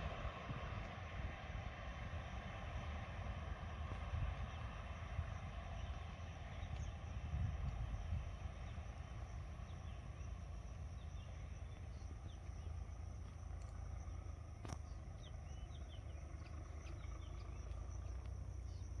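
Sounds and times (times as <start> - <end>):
insect drone: 0.0 - 19.0
low rumble: 0.0 - 19.0
birds chirping: 8.6 - 19.0.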